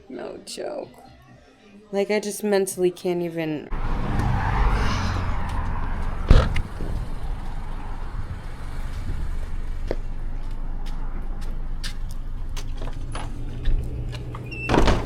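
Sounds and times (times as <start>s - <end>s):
car engine rumbling: 3.7s - 15.0s
sharp thump: 6.2s - 7.3s.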